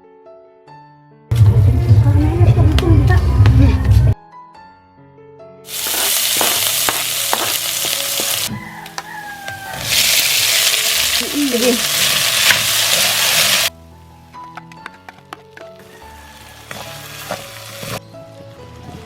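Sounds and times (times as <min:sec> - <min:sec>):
background music: 0:00.0 - 0:19.0
food sizzling loudly: 0:05.7 - 0:13.7, 0:15.8 - 0:19.0.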